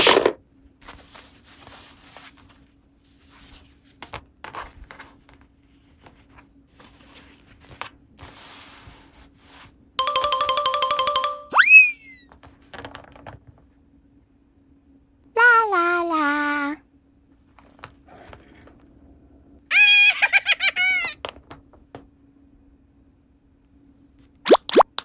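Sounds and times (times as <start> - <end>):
cartoon boing whoop: 11.2 - 12.2.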